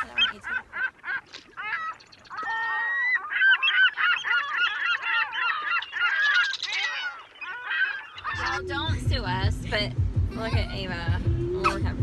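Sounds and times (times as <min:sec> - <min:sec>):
birds honking: 0:00.0 - 0:12.0.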